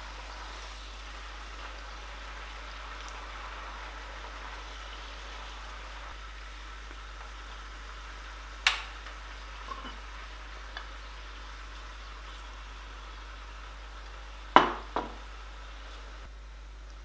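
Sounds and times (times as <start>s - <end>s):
spinach sizzling in oiled pan: 0.0s - 17.0s.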